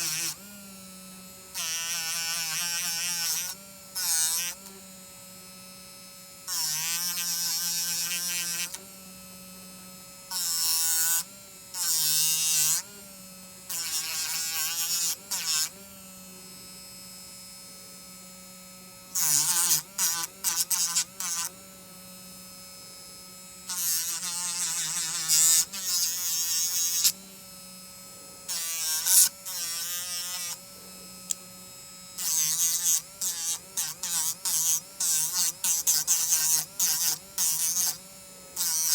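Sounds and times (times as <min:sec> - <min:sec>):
rotary tool whining: 0:19.2 - 0:38.9.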